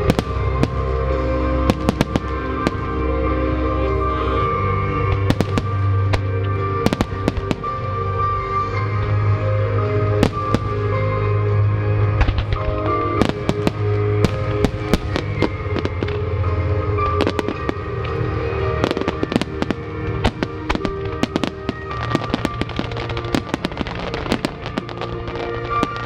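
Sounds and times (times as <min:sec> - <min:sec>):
fireworks bursting and crackling: 0:00.0 - 0:26.0
music: 0:00.0 - 0:26.0.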